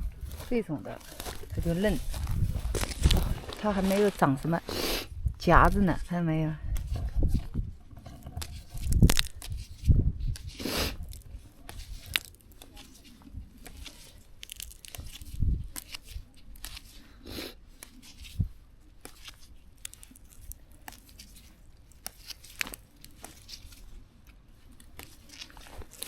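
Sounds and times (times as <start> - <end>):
soft low thumps: 0.0 - 8.1
plant stems rustling and snapping: 0.0 - 26.0.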